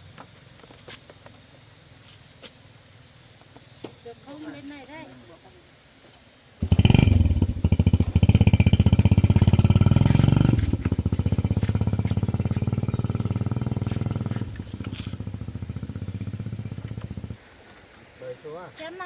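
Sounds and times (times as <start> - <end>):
motorbike engine running: 6.6 - 17.4.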